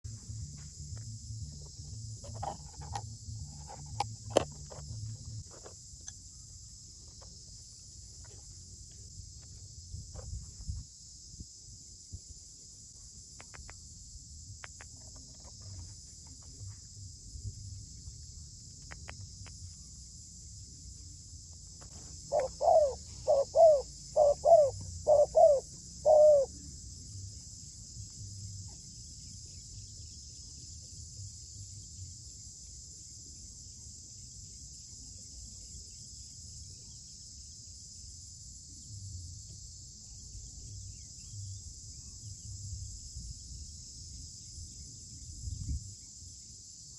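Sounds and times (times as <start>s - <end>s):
insects droning: 0.1s - 46.9s
dove cooing: 22.3s - 26.5s.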